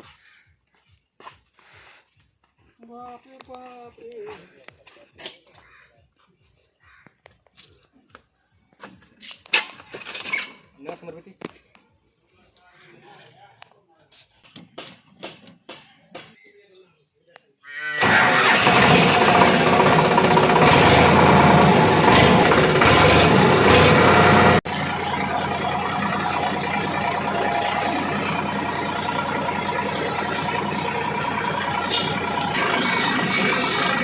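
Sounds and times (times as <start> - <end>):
tractor diesel engine running: 18.0 - 34.0.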